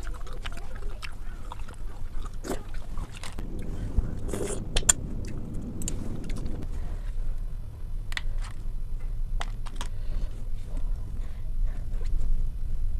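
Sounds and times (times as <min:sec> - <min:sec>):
chewing and mouth smacking: 0:00.0 - 0:03.6
low background rumble: 0:00.0 - 0:12.9.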